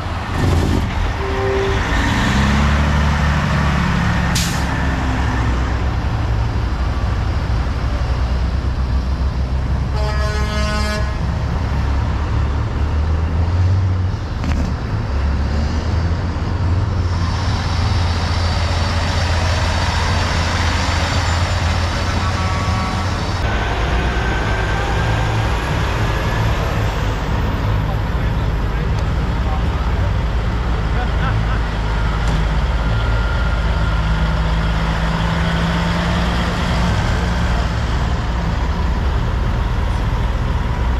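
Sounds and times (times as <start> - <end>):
truck horn toot: 1.2 - 2.4, 9.9 - 11.3, 22.1 - 23.2.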